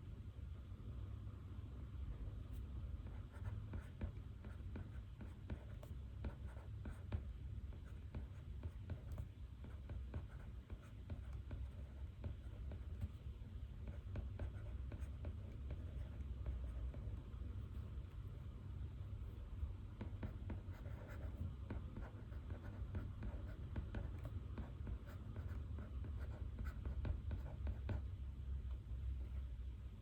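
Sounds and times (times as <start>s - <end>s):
low room tone hum: 0.0s - 30.0s
pen scratching on paper: 3.0s - 13.2s, 13.8s - 17.9s, 20.0s - 28.1s.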